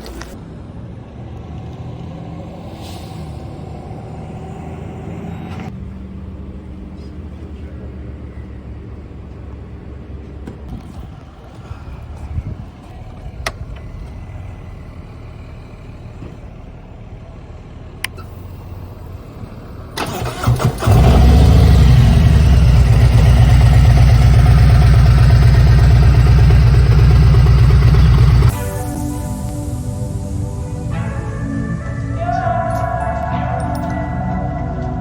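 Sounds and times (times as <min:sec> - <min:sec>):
motorcycle engine starting and idling: 0:04.5 - 0:31.3.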